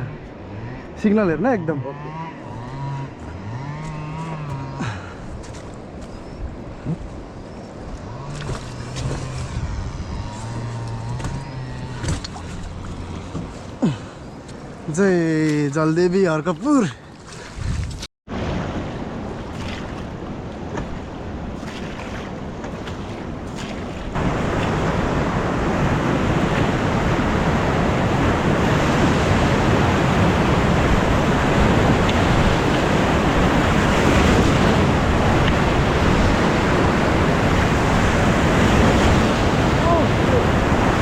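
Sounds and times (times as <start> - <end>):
river rapids roaring: 7.8 - 15.0, 18.4 - 41.0.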